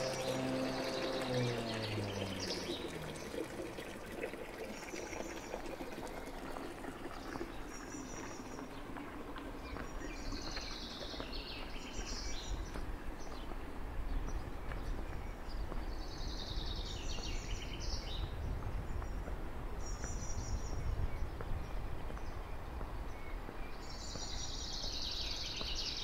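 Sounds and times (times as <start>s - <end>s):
low falling tone: 0.0s - 5.5s
outdoor background rush: 0.0s - 26.0s
small birds chirping: 0.0s - 26.0s.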